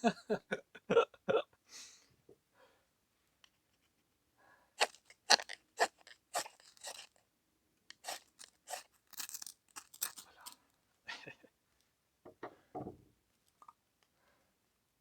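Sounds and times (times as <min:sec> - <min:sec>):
kindling crunching and scraping: 0:04.8 - 0:07.2, 0:07.9 - 0:10.6.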